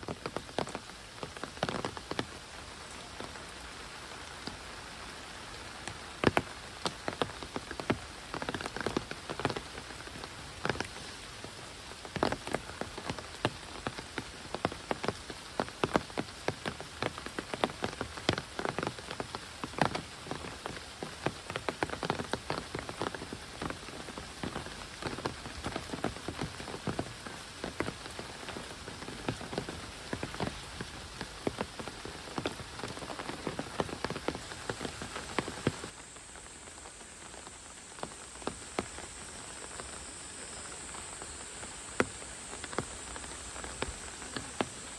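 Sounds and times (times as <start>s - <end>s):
heavy rain hiss: 0.0s - 44.9s
raindrops pattering: 0.0s - 44.9s.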